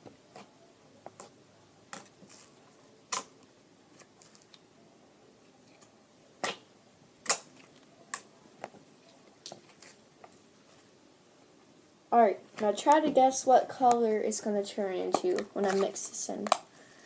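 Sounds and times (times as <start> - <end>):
slime clicking and popping: 7.2 - 8.3.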